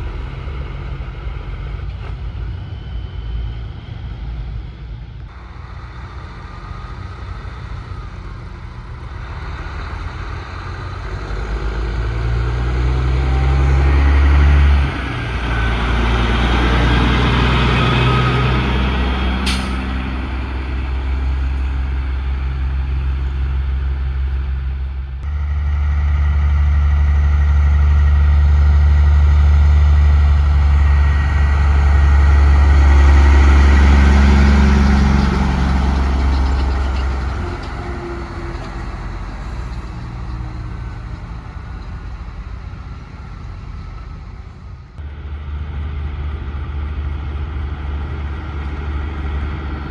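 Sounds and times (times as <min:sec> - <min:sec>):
diesel truck engines running: 0:00.0 - 0:49.9
air brake hiss: 0:19.4 - 0:19.9.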